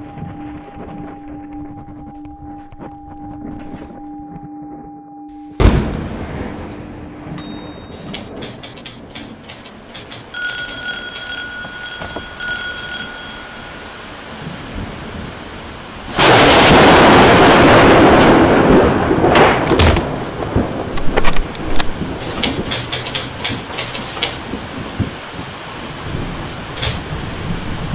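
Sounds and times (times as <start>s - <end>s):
rain: 0.0s - 2.2s, 6.0s - 27.9s
thunder crash: 5.6s - 7.4s, 14.2s - 22.6s
typewriter keys clacking: 7.4s - 13.2s, 22.2s - 24.4s, 26.8s - 27.0s
typewriter bell ringing: 7.4s - 14.2s.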